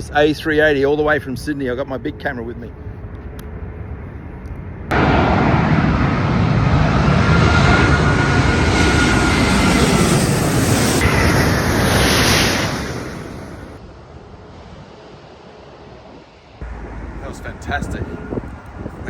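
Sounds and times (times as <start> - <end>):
jet engines passing overhead: 0.0 - 19.0
thin high whine: 7.3 - 13.8.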